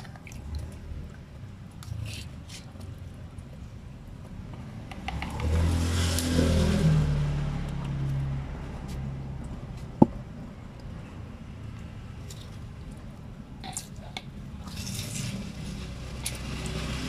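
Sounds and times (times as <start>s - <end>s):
vehicle engine passing by: 4.4s - 12.3s, 14.7s - 17.0s.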